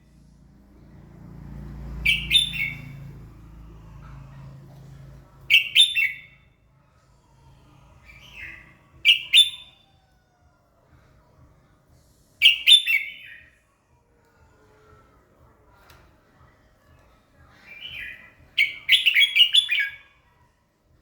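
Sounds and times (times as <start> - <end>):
bird singing: 1.9 - 3.6, 5.5 - 6.5, 8.0 - 9.8, 12.4 - 13.6, 17.6 - 20.1.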